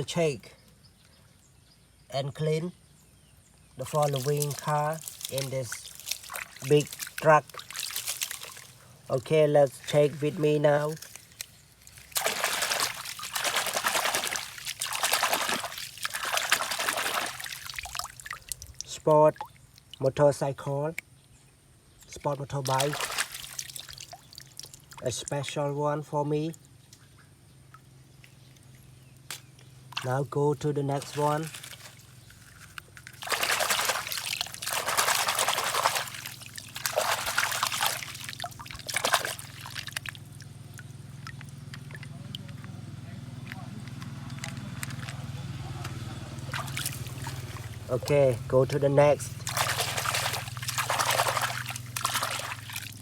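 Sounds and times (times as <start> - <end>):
low steady hum: 0.0 - 53.0
water trickling and splashing: 3.6 - 20.3, 22.0 - 25.6, 26.6 - 53.0.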